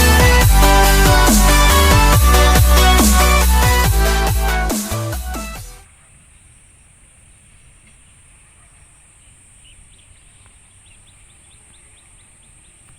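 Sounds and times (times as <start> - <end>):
electronic dance music: 0.0 - 5.8.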